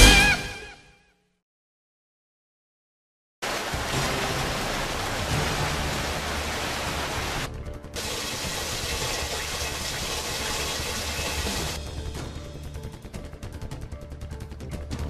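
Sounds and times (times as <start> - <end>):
heavy rain on pavement: 3.4 - 11.8.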